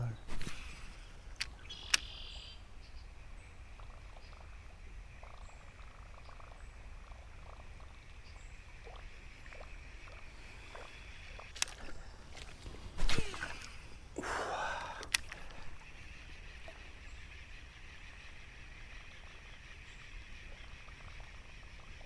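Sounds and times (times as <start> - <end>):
faint clicks: 0.3 - 2.3, 8.8 - 13.8, 14.5 - 17.4
high-pitched animal chorus: 5.2 - 12.5, 14.6 - 22.0.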